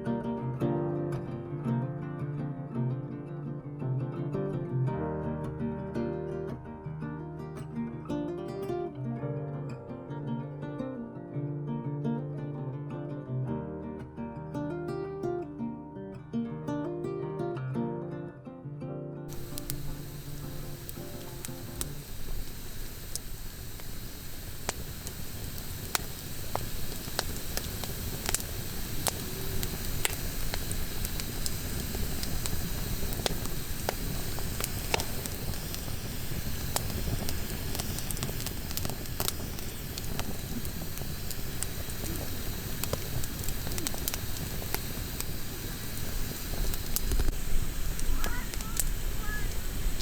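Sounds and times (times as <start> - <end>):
campfire pops and crackles: 19.3 - 50.0
low steady fire rumble: 19.3 - 50.0.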